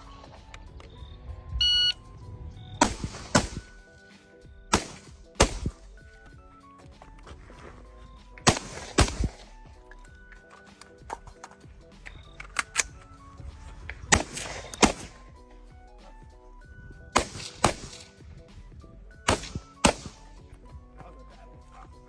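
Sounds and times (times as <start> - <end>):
background music: 0.0 - 22.0
gunshots with echo: 2.8 - 3.8, 4.7 - 5.9, 8.4 - 9.5, 14.1 - 15.2, 17.1 - 18.2, 19.3 - 20.3.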